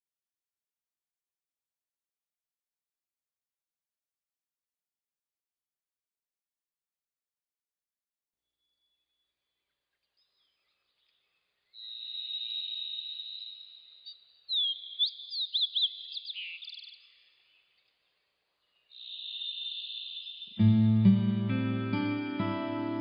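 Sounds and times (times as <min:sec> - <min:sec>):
high-pitched bird chirps and trills: 0:11.7 - 0:17.7, 0:18.9 - 0:20.6.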